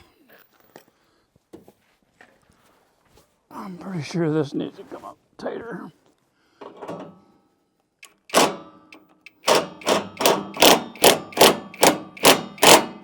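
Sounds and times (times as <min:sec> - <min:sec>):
ratchet wrench clicking: 0:08.0 - 0:12.9.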